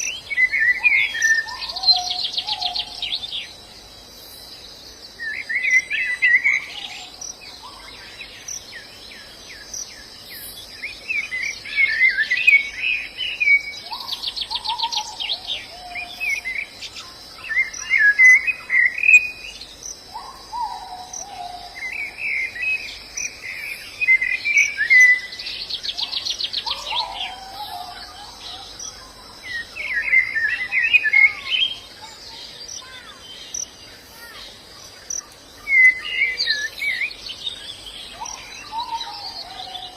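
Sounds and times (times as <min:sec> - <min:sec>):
birds warbling and trilling: 0:00.0 - 0:39.9
insect drone: 0:00.0 - 0:39.9.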